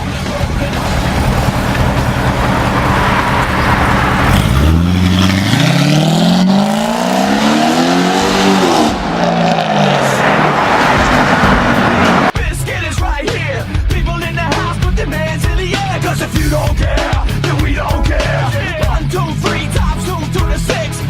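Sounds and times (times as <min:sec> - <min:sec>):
car engine idling and revving: 0:00.0 - 0:12.4.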